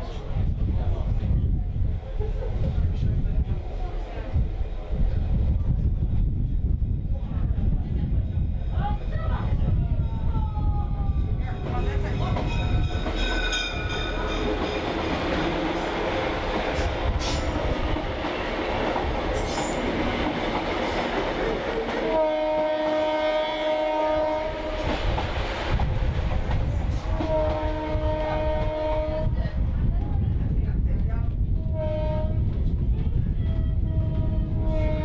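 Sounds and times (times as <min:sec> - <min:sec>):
train wheels on rails: 0:11.1 - 0:31.2
locomotive air horn: 0:22.1 - 0:24.9, 0:27.2 - 0:29.2.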